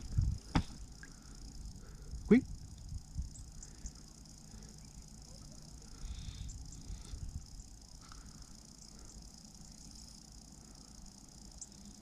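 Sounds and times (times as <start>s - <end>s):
low rumble: 0.0s - 3.6s
insects chirping: 0.0s - 12.0s.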